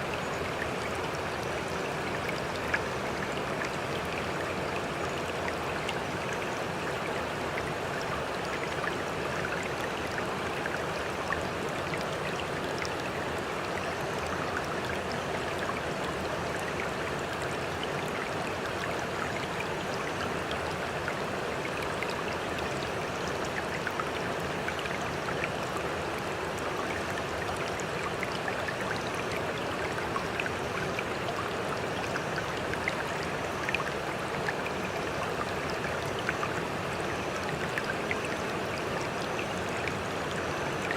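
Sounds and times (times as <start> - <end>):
water rushing and splashing: 0.0 - 40.9.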